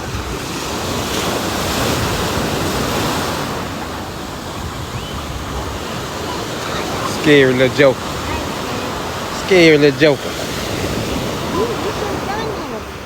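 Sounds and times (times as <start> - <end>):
wind rumbling on microphone: 0.0 - 9.5
ocean surf breaking: 0.0 - 13.0.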